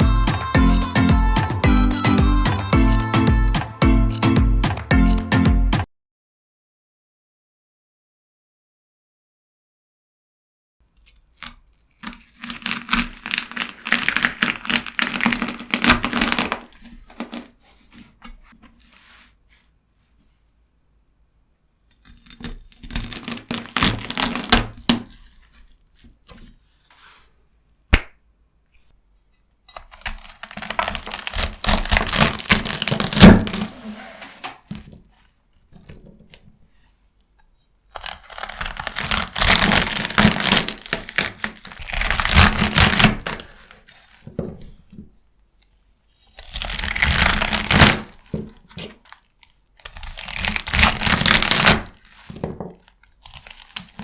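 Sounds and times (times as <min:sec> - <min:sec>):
knife cutting celery: 0:11.0 - 0:19.3, 0:21.9 - 0:27.2, 0:29.7 - 0:34.9, 0:37.9 - 0:44.4, 0:46.2 - 0:54.0.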